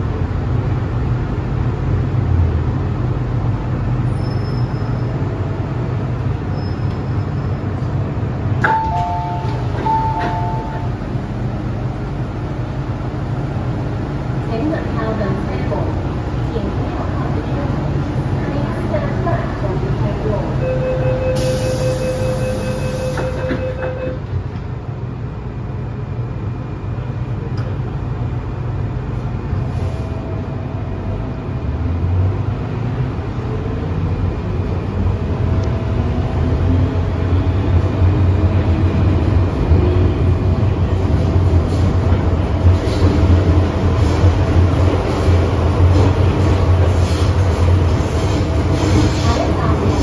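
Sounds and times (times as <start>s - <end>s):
train running rumble: 0.0s - 50.0s
door warning tone: 8.6s - 11.0s, 20.6s - 24.3s.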